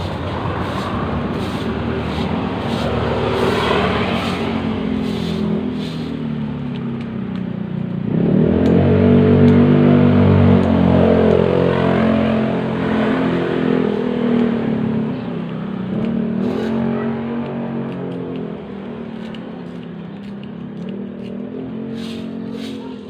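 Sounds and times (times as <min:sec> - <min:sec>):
vehicle engine revving: 0:00.0 - 0:07.2, 0:07.9 - 0:23.0.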